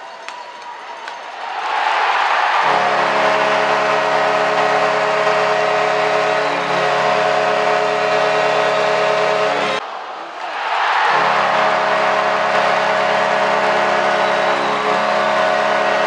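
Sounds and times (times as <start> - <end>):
crowd cheering: 0.0 - 16.0
goal horn long steady note: 2.1 - 9.8, 10.8 - 16.0.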